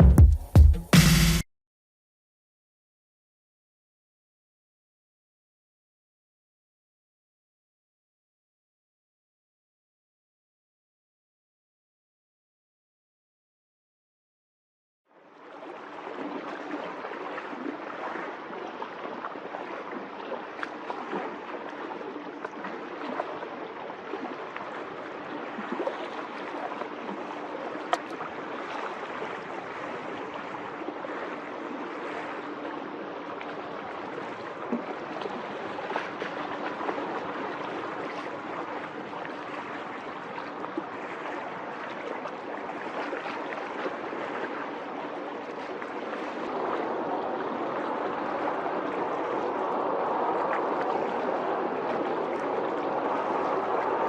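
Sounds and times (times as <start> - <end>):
choppy seawater: 15.1 - 54.0
faint steady hum: 15.3 - 54.0.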